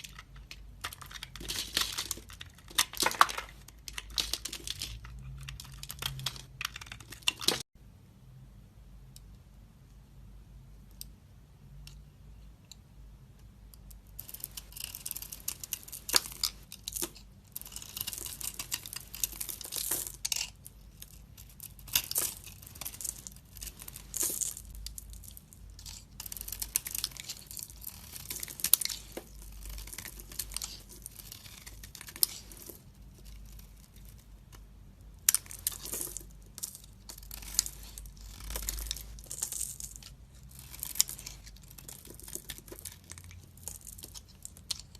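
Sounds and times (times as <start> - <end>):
knife shaving soap crunching: 0.0 - 7.6, 14.2 - 34.2, 35.3 - 44.9.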